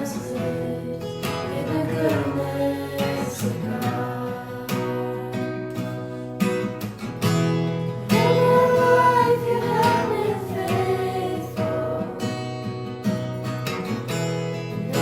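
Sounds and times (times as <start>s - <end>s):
person singing: 0.0s - 5.4s, 8.1s - 12.4s
acoustic guitar strumming: 0.0s - 15.0s.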